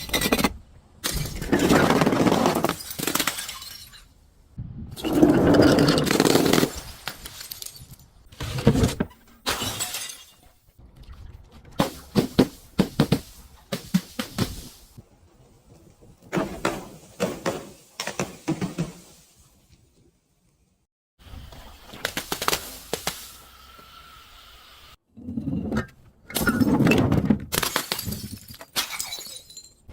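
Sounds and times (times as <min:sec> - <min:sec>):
glass bottles shattering: 0:02.4 - 0:04.2, 0:05.0 - 0:08.0, 0:09.4 - 0:10.6, 0:26.3 - 0:29.9.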